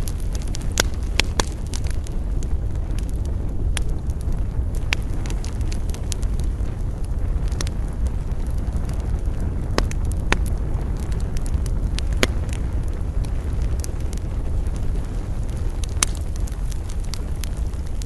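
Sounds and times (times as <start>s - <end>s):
burning wood popping: 0.0s - 18.0s
campfire crackling: 0.0s - 18.0s
steady low rumble: 0.0s - 18.0s.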